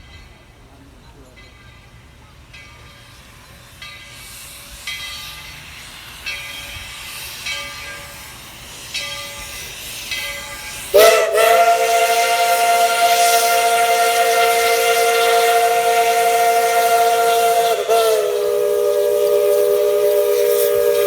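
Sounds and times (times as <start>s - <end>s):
steam locomotive bell ringing: 0.0s - 21.0s
steam hiss: 2.8s - 21.0s
high-pitched steam whistle: 4.2s - 21.0s.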